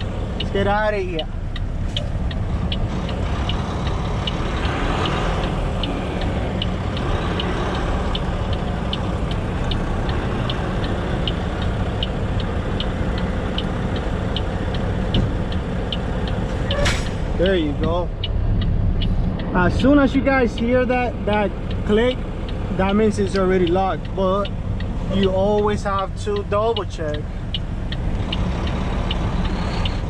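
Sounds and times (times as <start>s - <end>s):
diesel truck engine running: 0.0s - 30.0s
sharp repeating tick: 0.0s - 30.0s.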